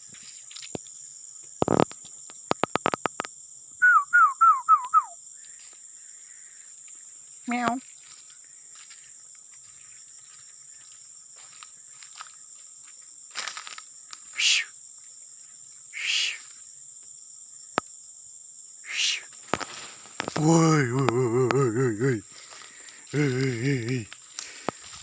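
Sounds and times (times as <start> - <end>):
crickets whining: 0.0 - 25.0
barn owl hissing screeches: 14.3 - 14.7, 15.9 - 16.4, 18.8 - 19.3.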